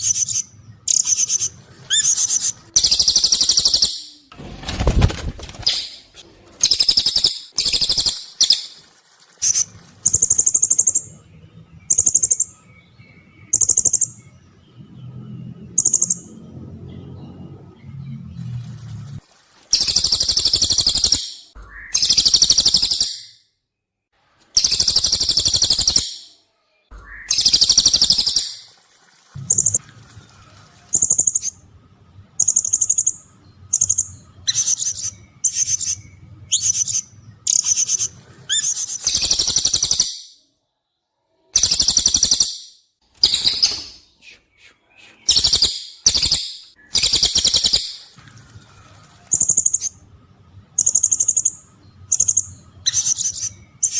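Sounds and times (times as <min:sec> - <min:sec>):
harsh buzzy bird calls: 0:00.0 - 0:11.1, 0:41.5 - 0:50.0.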